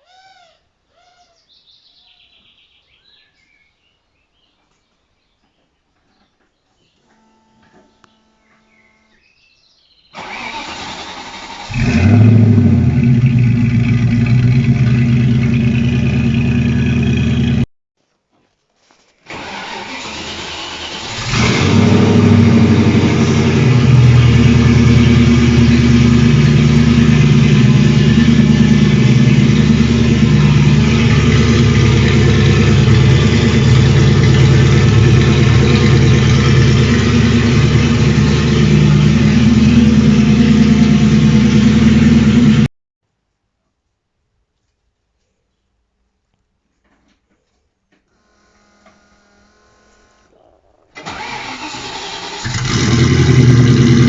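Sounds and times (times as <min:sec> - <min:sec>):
engine revving and idling: 0:10.2 - 0:17.7, 0:19.9 - 0:42.7, 0:51.1 - 0:54.0.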